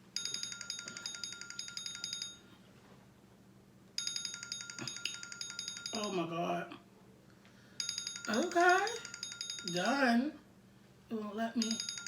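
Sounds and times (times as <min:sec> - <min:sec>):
timer alarm beeping: 0:07.8 - 0:10.0.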